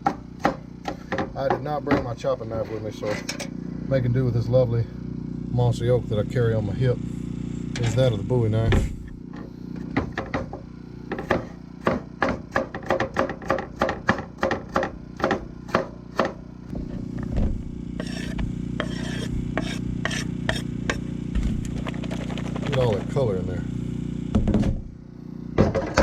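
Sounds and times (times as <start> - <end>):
knife chopping on a board: 0.0 - 2.1, 11.1 - 16.4, 17.2 - 21.5.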